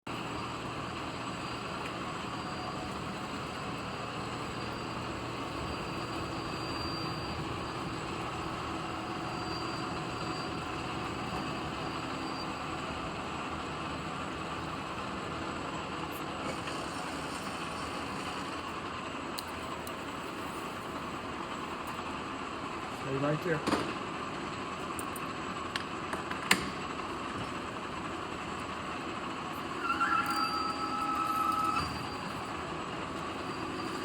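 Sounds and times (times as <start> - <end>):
metal lathe humming and whining: 0.1 - 19.0, 27.0 - 34.0.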